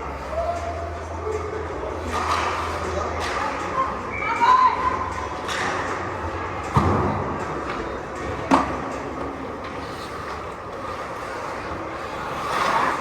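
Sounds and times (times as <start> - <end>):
skates and sticks on ice: 0.2 - 3.9, 7.6 - 13.0.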